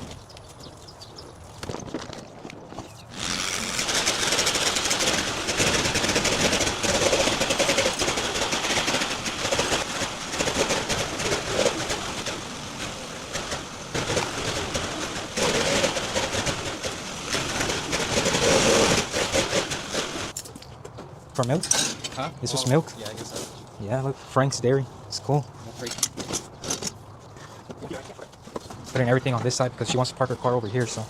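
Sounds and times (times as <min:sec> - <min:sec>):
machine motor rushing noise: 0:03.1 - 0:20.3.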